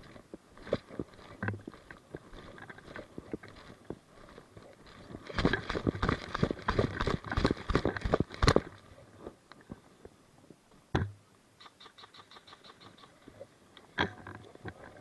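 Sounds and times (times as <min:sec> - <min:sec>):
knocks and rustles: 0:00.0 - 0:09.8.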